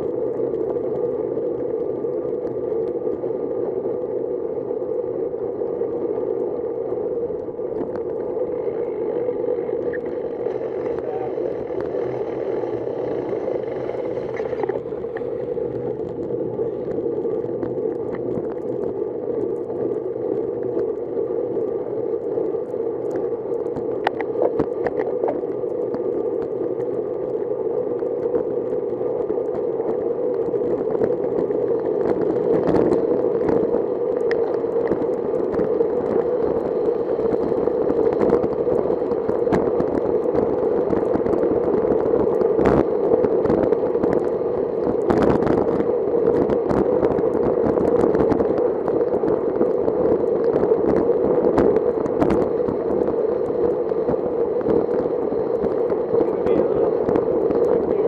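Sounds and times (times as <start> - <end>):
bicycle tyres on wet road: 0.0 - 58.0.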